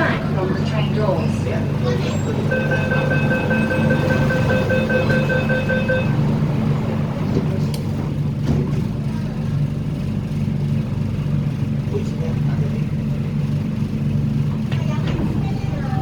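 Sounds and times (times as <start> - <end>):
train low hum: 0.0 - 16.0
rapid pulsing door warning beep: 1.6 - 6.6.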